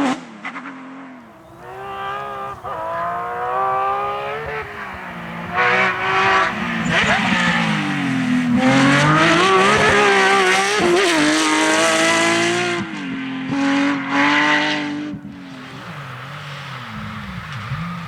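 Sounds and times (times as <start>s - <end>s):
race car engine at full throttle: 0.0s - 18.0s.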